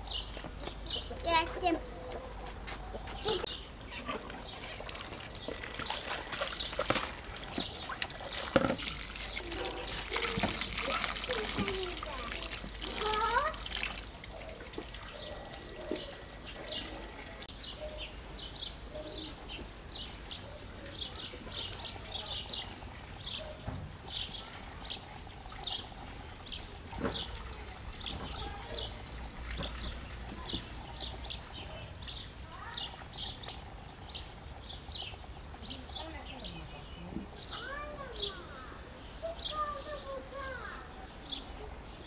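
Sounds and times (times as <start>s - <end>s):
small birds chirping: 0.0s - 42.0s
water running from a tap: 4.5s - 15.8s, 24.0s - 36.1s.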